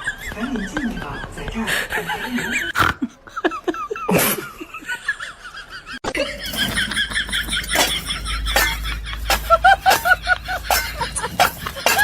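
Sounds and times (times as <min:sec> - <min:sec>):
people laughing: 0:00.0 - 0:12.0.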